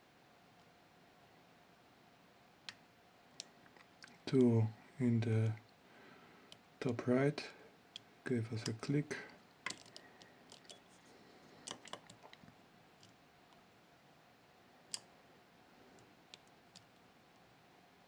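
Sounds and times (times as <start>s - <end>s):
lock pick clicking and scraping: 9.7s - 11.0s, 11.6s - 12.4s.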